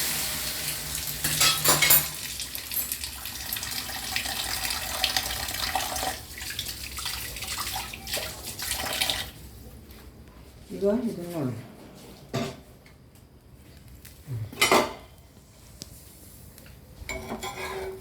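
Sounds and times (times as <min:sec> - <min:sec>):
tap water running into sink: 0:00.0 - 0:09.4.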